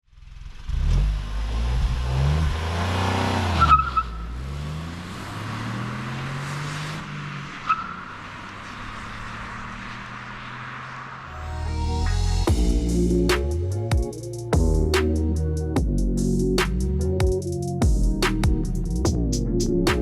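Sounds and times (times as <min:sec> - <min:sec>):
car engine accelerating hard: 0:00.2 - 0:11.9
high chirp at upshift: 0:11.3 - 0:16.6.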